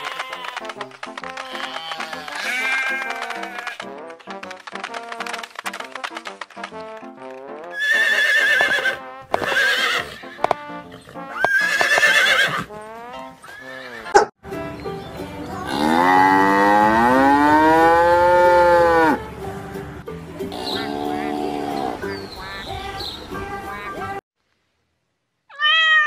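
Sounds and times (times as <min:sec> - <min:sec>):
faint background music: 0:00.0 - 0:24.2
horse whinnying: 0:01.5 - 0:03.8, 0:07.7 - 0:12.7, 0:13.4 - 0:14.2
cow mooing: 0:15.7 - 0:19.2.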